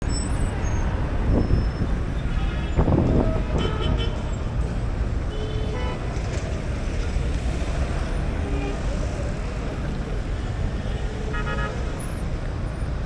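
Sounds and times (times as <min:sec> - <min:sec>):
traffic engines rumbling: 0:00.0 - 0:13.0
vehicle horn toots: 0:03.5 - 0:04.3, 0:11.3 - 0:11.8.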